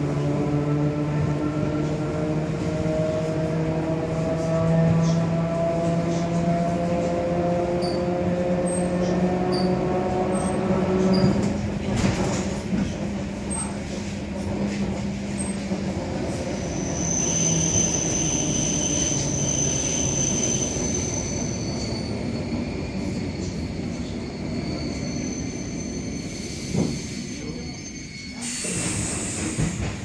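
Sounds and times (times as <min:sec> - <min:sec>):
train wheels rumbling: 0:00.0 - 0:30.0
high-pitched squeals: 0:16.6 - 0:29.4
hiss: 0:28.4 - 0:29.9.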